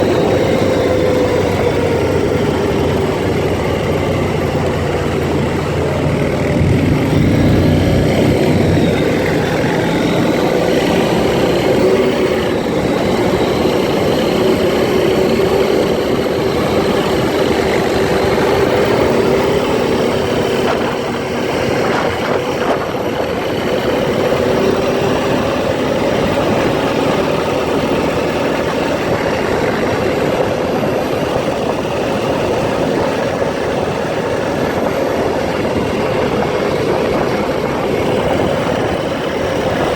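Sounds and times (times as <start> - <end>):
atv engine droning: 0.0 - 39.9.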